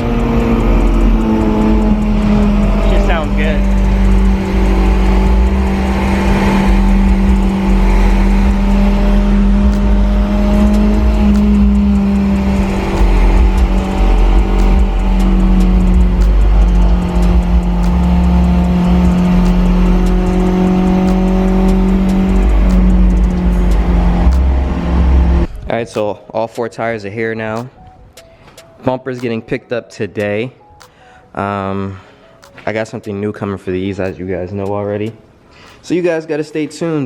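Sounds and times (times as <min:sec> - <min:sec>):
car engine cruising: 0:00.0 - 0:25.7.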